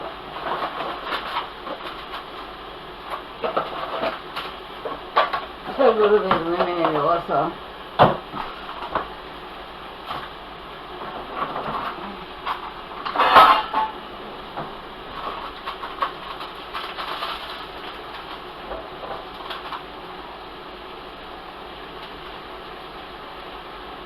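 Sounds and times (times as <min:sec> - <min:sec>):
steady background hiss: 0:00.0 - 0:24.0
utensils and cookware clinking: 0:11.6 - 0:14.0
cookware clattering: 0:13.0 - 0:14.0.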